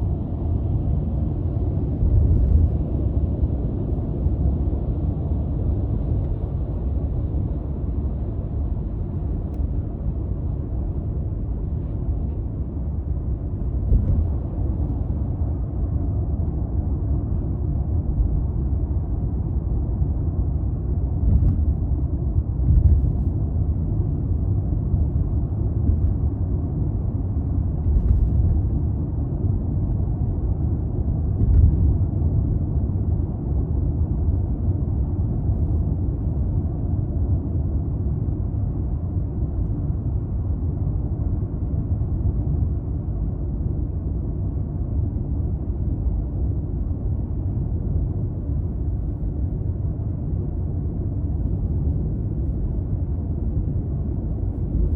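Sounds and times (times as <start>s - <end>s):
car engine and road rumble: 0.0s - 54.9s.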